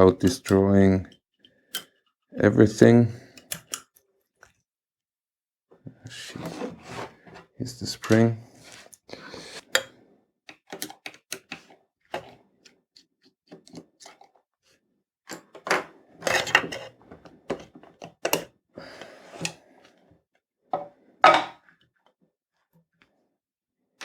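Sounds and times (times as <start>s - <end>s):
plastic clicking and scraping: 10.5s - 12.4s.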